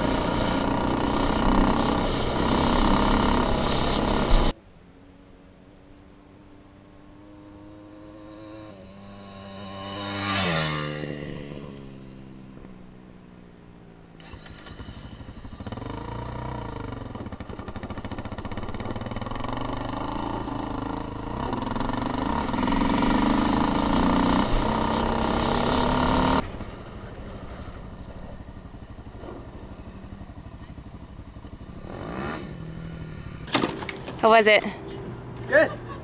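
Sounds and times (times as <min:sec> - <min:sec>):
off-road vehicle engine revving: 0:00.0 - 0:04.5, 0:14.2 - 0:26.4, 0:31.5 - 0:36.0.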